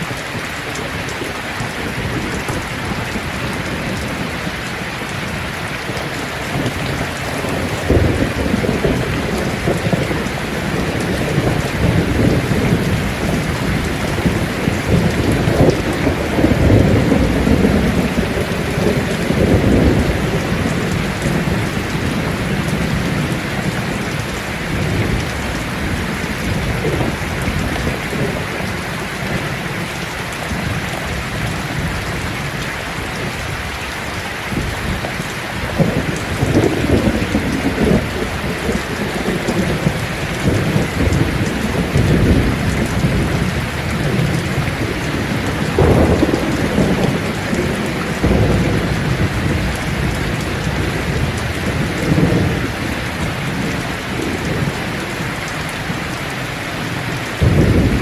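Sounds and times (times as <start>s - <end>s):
rain pattering on leaves: 0.0s - 58.0s
low roll of thunder: 5.1s - 32.4s, 34.5s - 55.2s, 57.2s - 58.0s.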